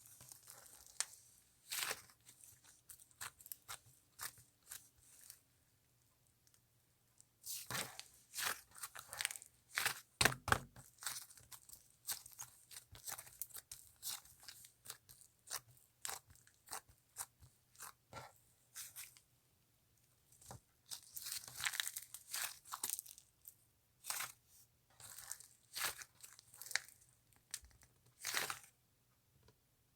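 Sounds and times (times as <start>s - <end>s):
slime crackling and tearing: 20.9s - 23.2s, 25.0s - 27.6s.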